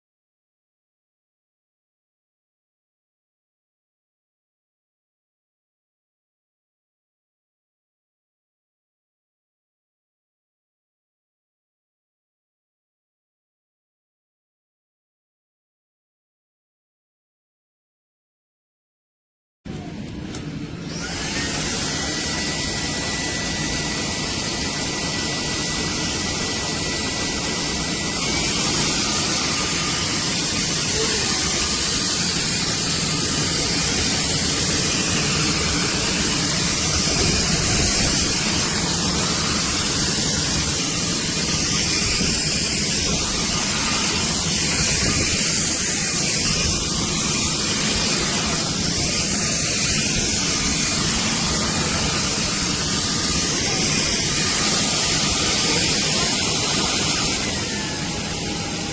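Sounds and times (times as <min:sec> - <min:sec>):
thin high whine: 0:19.7 - 0:58.9
vacuum cleaner running: 0:19.7 - 0:58.9.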